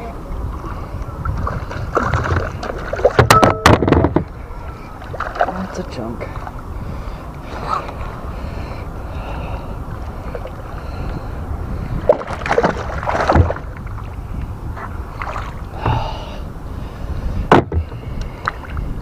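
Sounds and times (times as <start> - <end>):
water splashing: 0.0 - 6.8, 9.4 - 16.4
wind on microphone: 0.0 - 19.0
sharp knocks: 3.2 - 4.3, 17.5 - 17.9.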